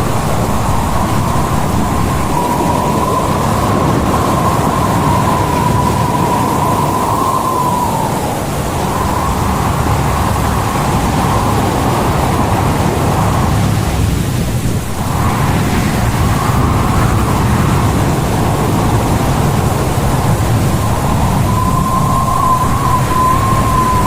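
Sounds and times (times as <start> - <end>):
storm wind and heavy seas: 0.0 - 24.0
wavering wind whistle: 0.0 - 24.0.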